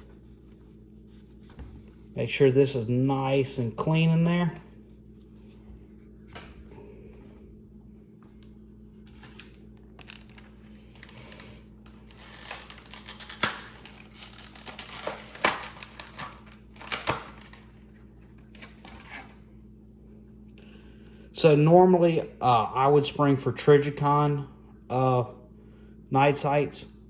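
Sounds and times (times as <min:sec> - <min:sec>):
cloth rubbing and crinkling: 0:00.0 - 0:11.2.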